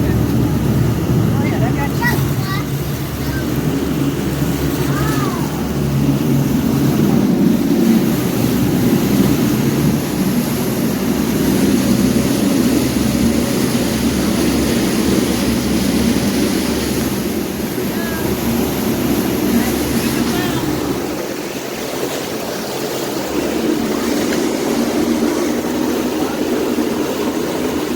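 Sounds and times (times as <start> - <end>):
boat engine running: 0.0 - 27.9
water and wind rushing past hull: 0.0 - 27.9.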